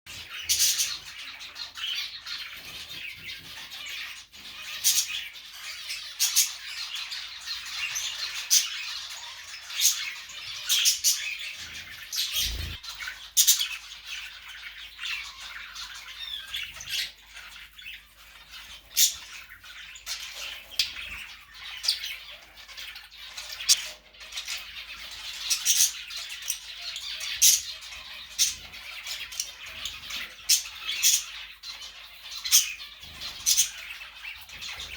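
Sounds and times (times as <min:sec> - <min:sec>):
bird squawking and chirping: 0:00.1 - 0:13.6.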